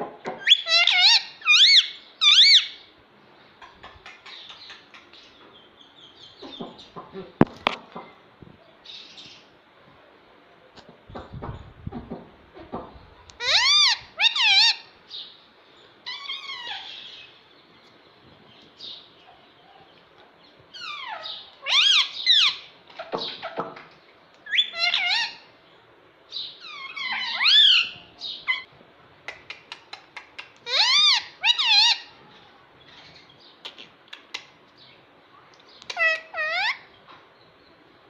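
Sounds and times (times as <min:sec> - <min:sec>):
parakeet shrill calls: 0:00.4 - 0:02.8, 0:13.4 - 0:14.9, 0:16.1 - 0:17.4, 0:20.7 - 0:22.7, 0:24.4 - 0:25.5, 0:26.4 - 0:28.7, 0:30.6 - 0:32.1, 0:35.9 - 0:36.9.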